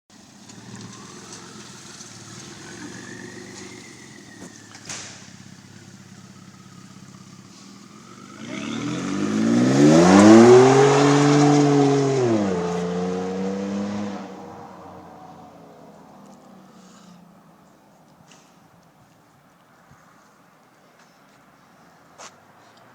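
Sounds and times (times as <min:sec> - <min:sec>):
truck engine idling: 0:00.2 - 0:08.2
truck exhaust accelerating hard: 0:00.5 - 0:15.4.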